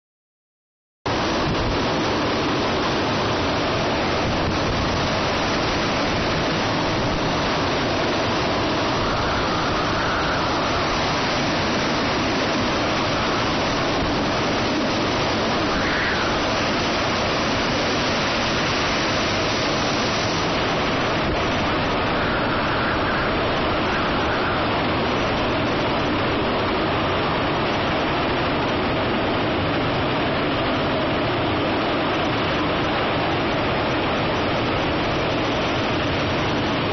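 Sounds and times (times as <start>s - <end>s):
storm wind and rain: 1.1s - 36.9s.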